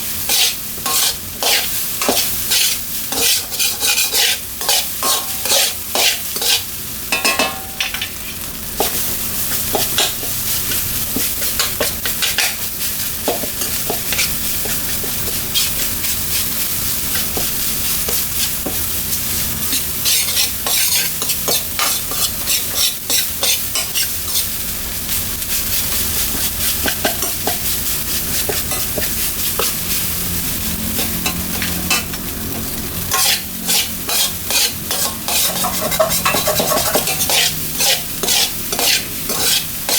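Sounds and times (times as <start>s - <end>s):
rice sizzling in a hot pan: 0.0s - 39.9s
metal spatula clacking on pan: 3.2s - 8.1s, 33.1s - 39.9s.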